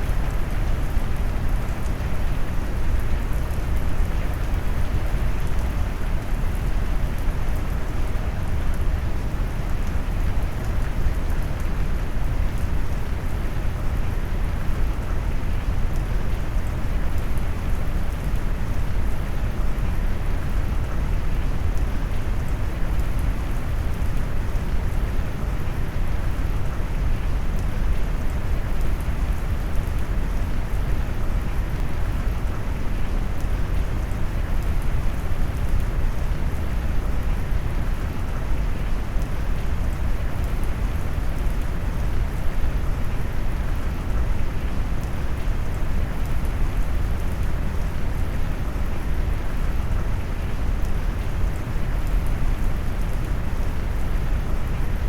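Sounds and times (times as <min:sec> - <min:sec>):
faint raindrop ticks: 0:00.0 - 0:55.0.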